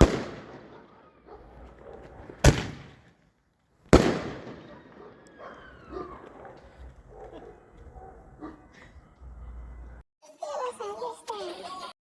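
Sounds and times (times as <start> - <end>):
firework bangs with echo: 0.0 - 1.0, 2.4 - 3.0, 4.0 - 5.2.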